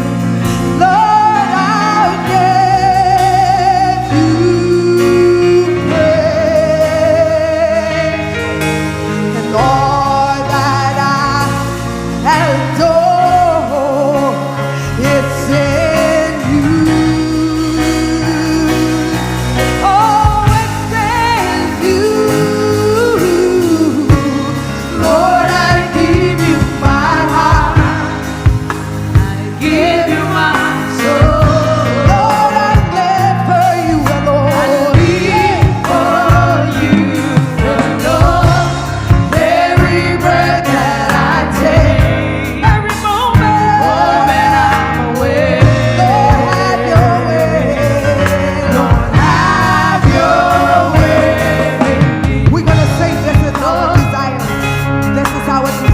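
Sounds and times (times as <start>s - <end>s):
band with bass and drums: 0.0s - 55.9s
choir singing: 15.2s - 54.5s.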